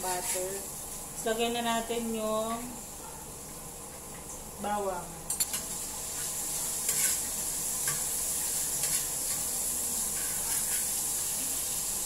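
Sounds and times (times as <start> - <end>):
stirring strokes in a pan: 0.0 - 1.3, 5.6 - 12.0
garlic sizzling in a frying pan: 0.0 - 4.9, 5.5 - 12.0.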